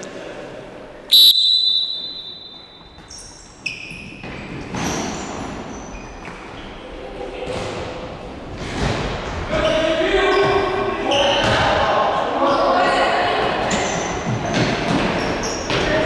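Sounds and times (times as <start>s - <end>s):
high calls echoing: 1.1s - 3.1s.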